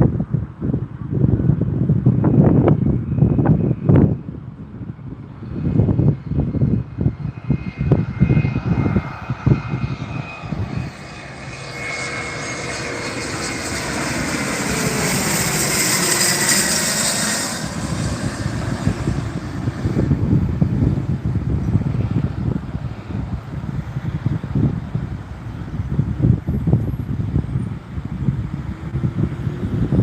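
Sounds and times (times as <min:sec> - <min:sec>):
jet aircraft passing overhead: 0:00.0 - 0:30.0
wind buffeting microphone: 0:00.0 - 0:30.0.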